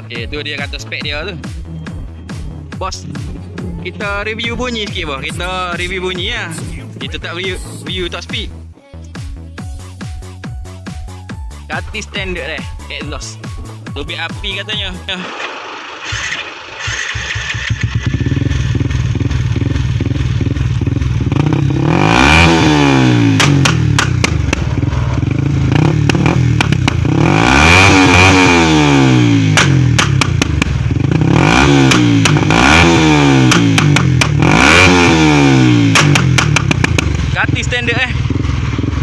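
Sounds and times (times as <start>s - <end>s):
motorcycle engine revving: 0.0s - 8.7s, 9.9s - 39.0s
exhaust cracks and pops: 15.3s - 21.7s, 23.2s - 27.2s, 29.4s - 39.0s.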